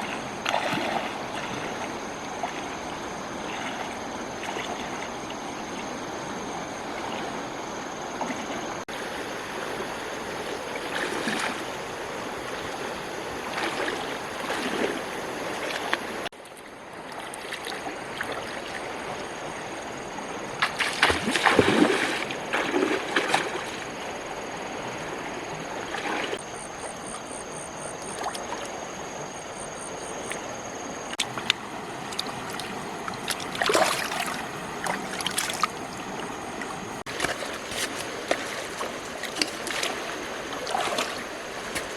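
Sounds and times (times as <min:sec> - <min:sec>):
water running and splashing: 0:20.6 - 0:23.8, 0:31.1 - 0:41.9.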